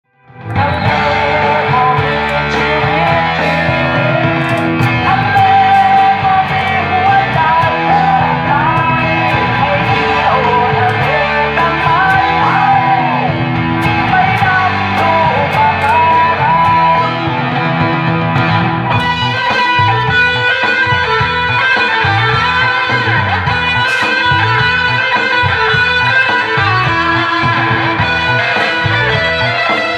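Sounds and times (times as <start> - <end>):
guitar-led music: 0.0 - 29.9.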